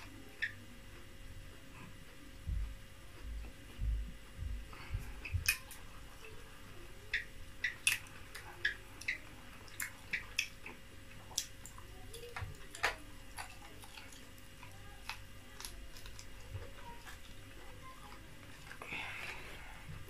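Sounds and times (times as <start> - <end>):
person chewing: 4.4 - 6.4, 7.0 - 20.0
wet lip smacks and mouth clicks: 7.1 - 11.8.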